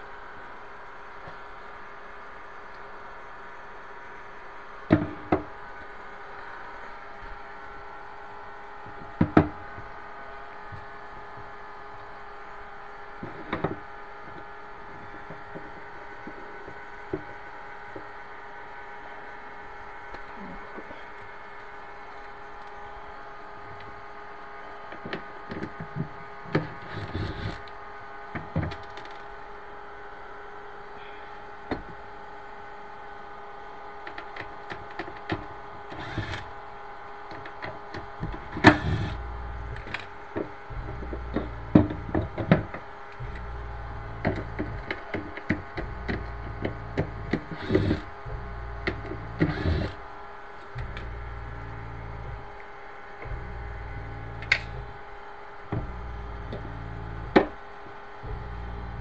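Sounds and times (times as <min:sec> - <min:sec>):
faint steady hum: 0:00.0 - 0:59.0
knocks and scrapes on wood: 0:37.9 - 0:50.0
low thuds: 0:48.1 - 0:49.6.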